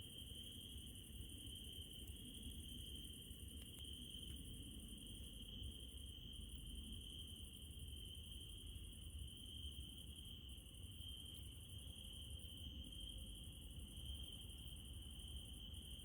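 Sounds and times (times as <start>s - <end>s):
night insects trilling: 0.0s - 16.0s.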